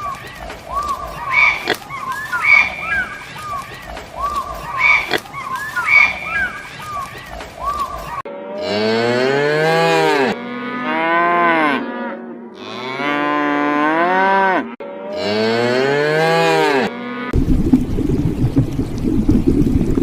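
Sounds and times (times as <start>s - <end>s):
cattle mooing: 8.6s - 17.4s.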